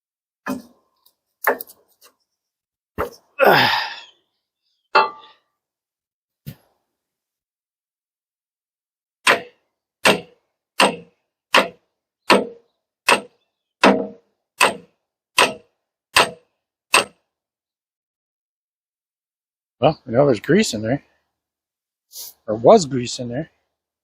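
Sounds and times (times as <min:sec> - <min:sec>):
ringing metal clanks: 0:05.0 - 0:05.4.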